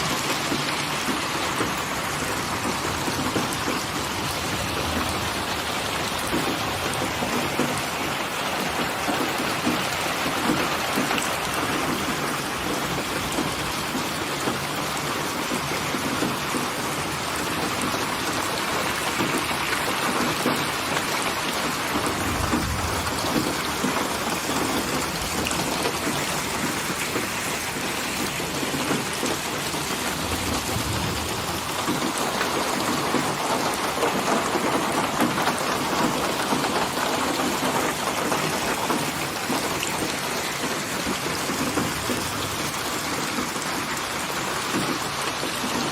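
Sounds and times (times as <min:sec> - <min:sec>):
heavy rain falling: 0:00.0 - 0:45.9
distant thunder rolling: 0:21.5 - 0:36.1.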